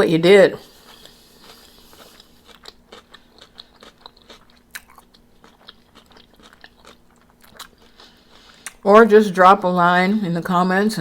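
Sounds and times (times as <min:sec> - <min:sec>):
chewing crispy food: 0:00.6 - 0:08.8.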